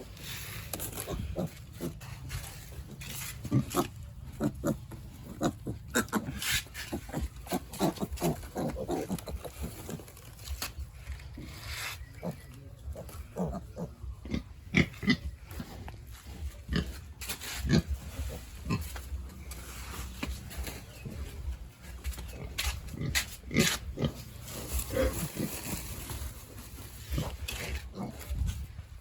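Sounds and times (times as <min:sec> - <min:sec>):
pigs grunting and squealing: 0:00.4 - 0:17.0, 0:22.2 - 0:26.0, 0:26.9 - 0:28.5.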